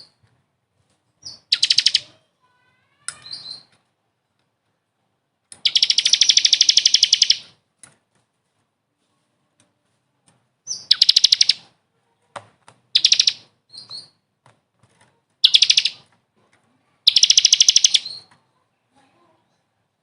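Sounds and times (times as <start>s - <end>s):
single bird chirps: 1.2s - 2.1s, 3.1s - 3.7s, 5.6s - 7.5s, 10.7s - 11.7s, 13.0s - 14.2s, 15.4s - 16.0s, 17.0s - 18.3s
songbird trilling: 1.2s - 2.1s, 5.6s - 7.5s, 10.7s - 11.7s, 13.0s - 14.2s, 15.4s - 16.0s, 17.0s - 18.3s.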